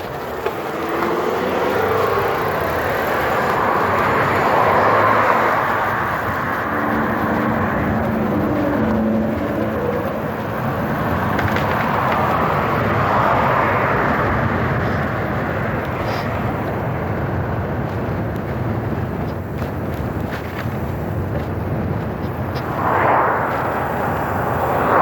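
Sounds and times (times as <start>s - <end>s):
bicycle tyre noise: 0.0s - 25.0s
wind rushing: 3.3s - 14.5s, 20.2s - 25.0s.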